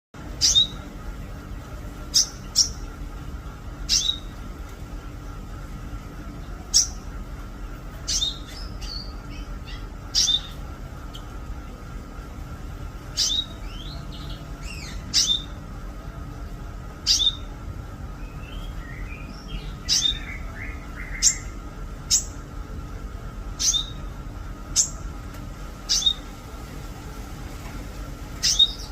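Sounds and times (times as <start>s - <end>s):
faint steady hum: 0.2s - 28.9s
bird twittering: 0.3s - 0.9s, 2.1s - 2.9s, 3.8s - 4.4s, 6.6s - 7.1s, 8.0s - 11.3s, 13.1s - 15.6s, 17.0s - 22.4s, 23.6s - 24.1s, 24.7s - 25.1s, 25.8s - 26.3s, 28.4s - 28.9s
songbird whistling calls: 0.4s - 0.9s, 2.1s - 2.8s, 3.9s - 4.3s, 8.0s - 11.3s, 13.1s - 15.6s, 17.0s - 17.5s, 18.2s - 22.4s, 23.6s - 24.1s, 24.7s - 25.0s, 25.8s - 26.3s, 28.4s - 28.9s.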